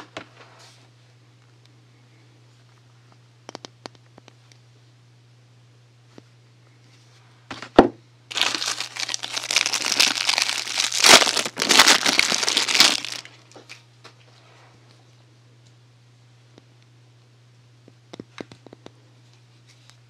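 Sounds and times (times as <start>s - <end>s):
packaging crinkling: 8.3s - 13.8s.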